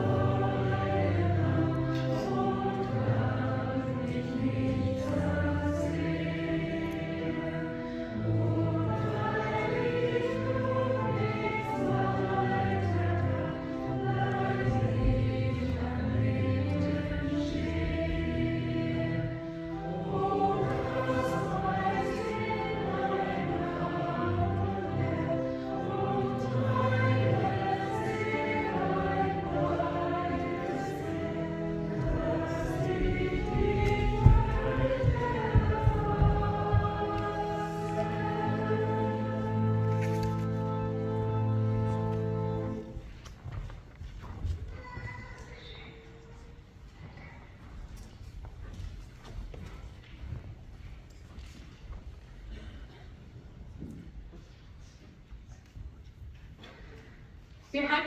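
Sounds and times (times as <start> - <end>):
organ playing low notes: 0.0 - 43.1
choir singing a hymn: 0.0 - 43.2.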